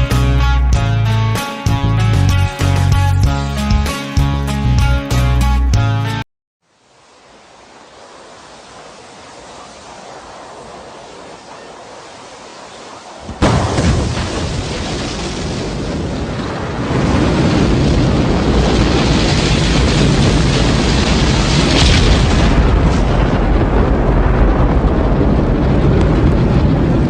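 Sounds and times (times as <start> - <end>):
rocket engine rumble: 13.0 - 27.0.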